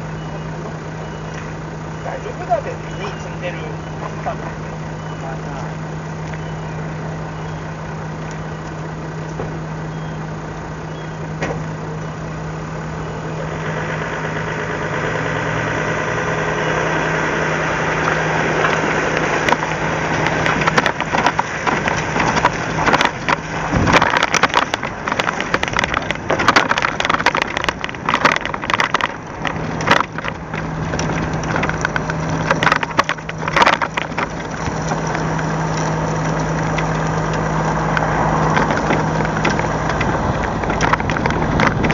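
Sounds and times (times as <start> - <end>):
engine idling: 0.0 - 41.9
irregular knocks and clatter: 17.8 - 41.9.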